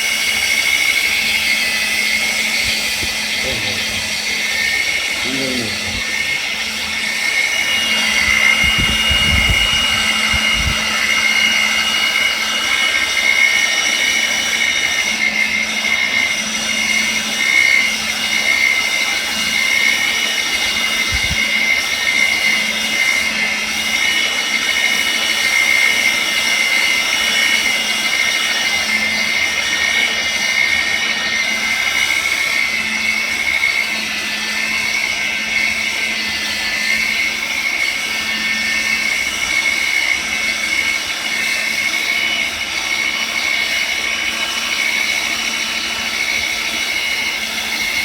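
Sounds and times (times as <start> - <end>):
plastic welding tool whining: 1.2 - 24.4
low thumps: 8.1 - 11.0.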